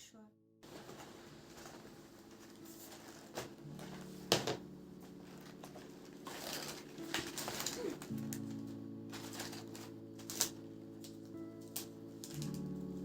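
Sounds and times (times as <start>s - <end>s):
soft background music: 0.0s - 13.0s
small objects clicking: 6.3s - 12.8s.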